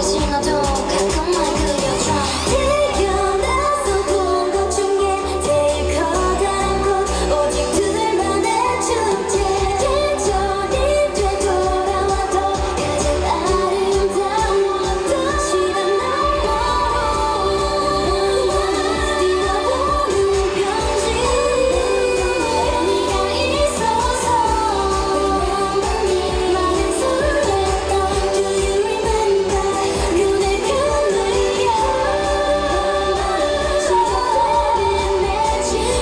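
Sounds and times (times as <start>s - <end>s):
dance beat: 0.0s - 36.0s
pop song over loudspeakers: 0.0s - 36.0s
woman singing: 0.0s - 36.0s.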